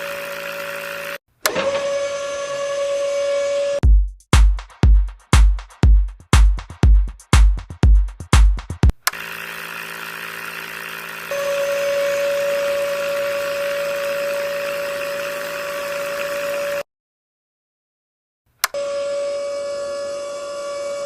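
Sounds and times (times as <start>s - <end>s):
small electric motor running: 0.0s - 3.8s, 9.1s - 16.8s, 18.7s - 21.0s.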